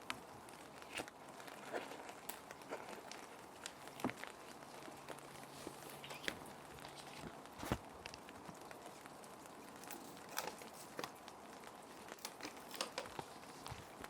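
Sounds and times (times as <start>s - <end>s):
plastic sheet protectors crinkling: 0.0s - 14.0s
soft hiss of rain: 0.0s - 14.0s.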